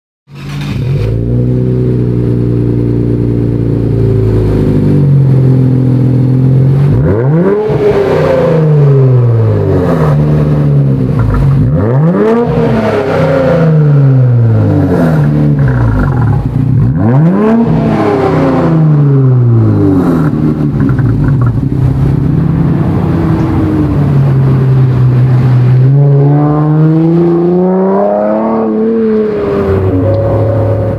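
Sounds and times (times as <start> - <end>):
car engine revving: 0.3 - 30.9.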